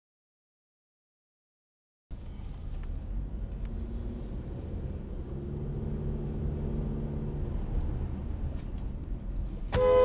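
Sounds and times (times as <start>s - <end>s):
car engine and road rumble: 2.1s - 10.0s.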